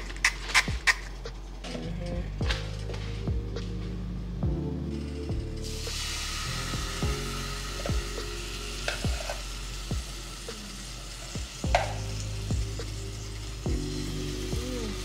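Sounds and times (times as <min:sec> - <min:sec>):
chicken sizzling in oil: 0:05.6 - 0:15.0.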